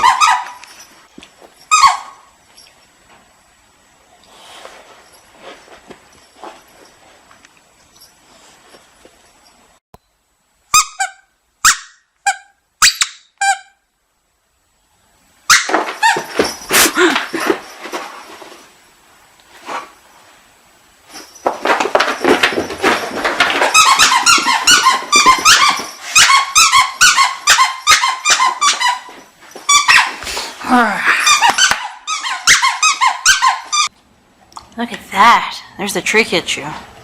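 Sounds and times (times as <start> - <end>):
dog squeaky toy squeaking: 0.0 - 0.6, 1.7 - 2.3, 10.7 - 13.8, 23.7 - 29.1, 29.7 - 30.2, 31.2 - 33.9.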